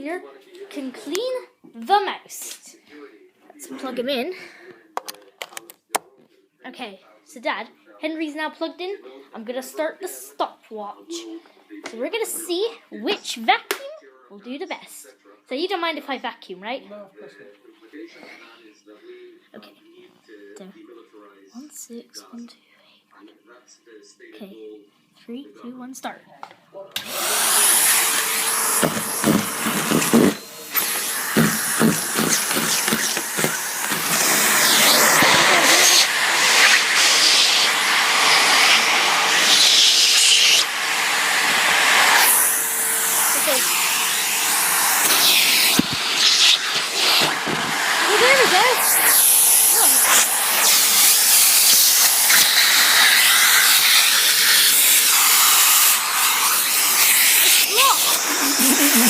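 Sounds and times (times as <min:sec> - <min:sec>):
vacuum cleaner hissing: 0:27.0 - 0:59.0.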